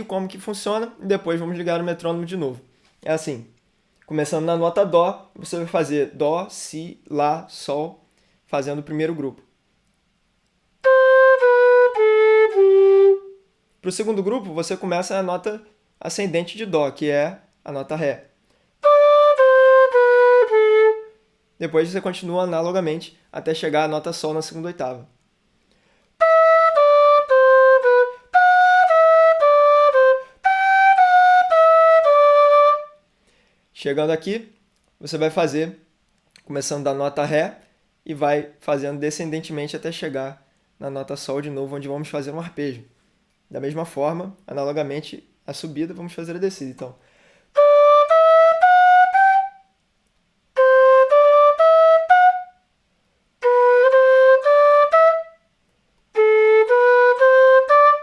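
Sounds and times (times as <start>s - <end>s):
end-blown flute playing a scale: 10.8s - 13.4s, 18.8s - 21.1s, 26.2s - 33.0s, 47.6s - 49.6s, 50.6s - 52.6s, 53.4s - 55.4s, 56.2s - 58.0s.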